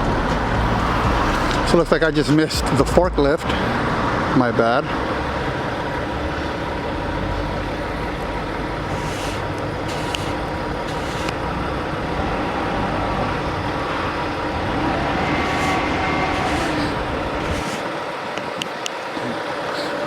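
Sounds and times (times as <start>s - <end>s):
vehicle engine low rumble: 0.0s - 18.8s
short hisses: 8.9s - 11.4s, 15.2s - 17.9s.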